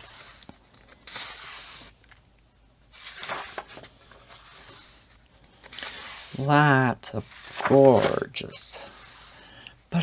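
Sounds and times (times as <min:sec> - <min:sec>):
paper pages turning: 0:00.0 - 0:02.2, 0:02.9 - 0:06.5, 0:07.1 - 0:09.4.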